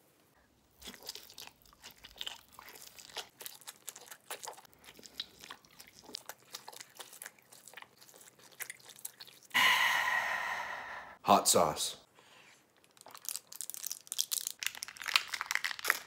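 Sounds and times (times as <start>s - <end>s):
person chewing steak: 0.6s - 9.6s, 12.7s - 16.0s.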